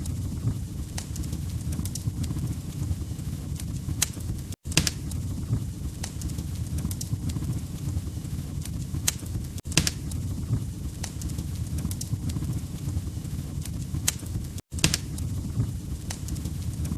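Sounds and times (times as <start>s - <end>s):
wood fire crackling: 0.0s - 16.9s
sharp pops of burning logs: 0.1s - 16.9s.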